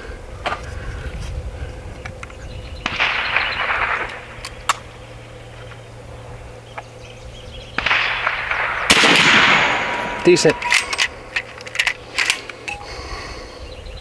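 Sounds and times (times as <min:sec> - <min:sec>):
air rifle shot crack: 0:02.8 - 0:05.0, 0:07.8 - 0:11.3.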